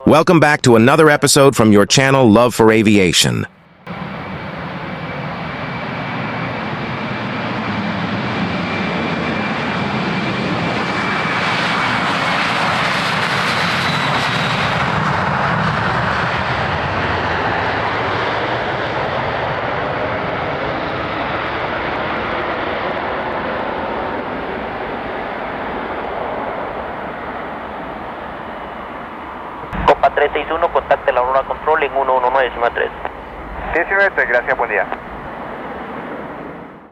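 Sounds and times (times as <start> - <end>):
jet engines roaring: 3.9 - 36.9
thin high engine whine: 24.5 - 36.9.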